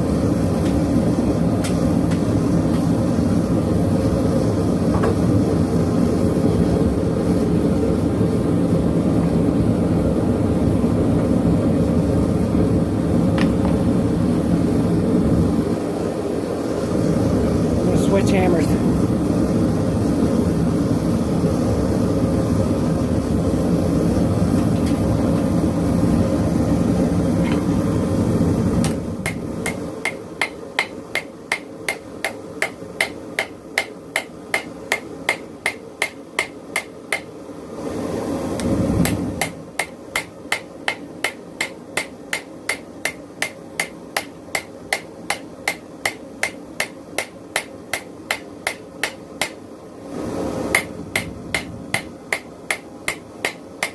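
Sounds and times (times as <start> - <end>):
hammer striking metal on anvil: 28.8 - 37.3, 39.0 - 49.6, 50.8 - 53.9
gas forge rushing: 36.7 - 40.2.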